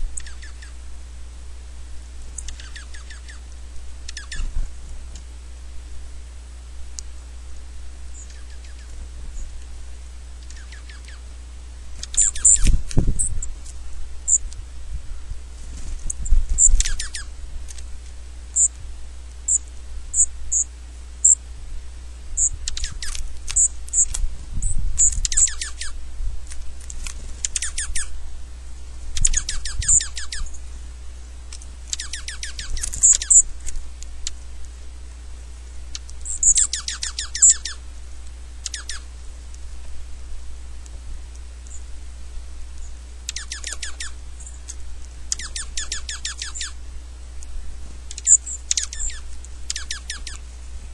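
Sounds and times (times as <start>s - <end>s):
high bird chirps: 0.2s - 0.8s, 2.4s - 3.5s, 4.1s - 4.5s, 8.1s - 9.5s, 10.4s - 11.3s, 12.0s - 13.5s, 16.1s - 17.3s, 19.5s - 21.4s, 22.4s - 26.0s, 27.4s - 28.1s, 29.2s - 30.6s, 31.9s - 33.5s, 35.9s - 37.8s, 38.6s - 39.1s, 42.9s - 46.8s, 48.1s - 50.4s
birds rattling chatter: 2.4s - 3.5s, 4.1s - 4.6s, 12.0s - 13.5s, 16.0s - 17.8s, 22.4s - 26.0s, 31.6s - 34.4s, 35.9s - 37.8s, 38.6s - 39.1s, 42.9s - 46.8s, 48.1s - 50.5s.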